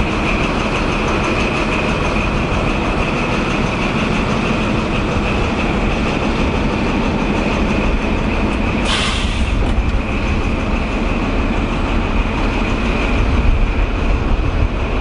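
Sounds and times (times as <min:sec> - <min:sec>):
diesel train rumbling: 0:00.0 - 0:15.0
short hiss: 0:08.8 - 0:09.6.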